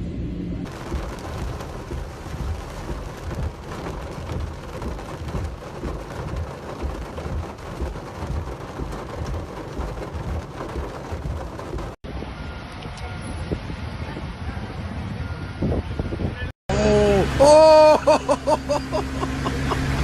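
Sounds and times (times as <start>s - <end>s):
low rumble: 0.0s - 12.4s
heavy rain pouring: 0.6s - 12.6s, 16.7s - 20.0s.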